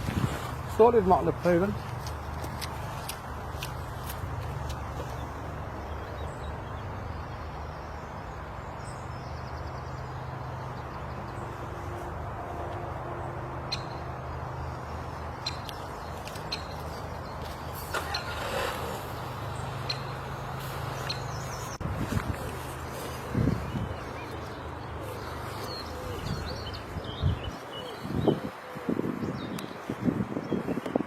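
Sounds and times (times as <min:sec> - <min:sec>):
bird calls: 0:13.7 - 0:29.9.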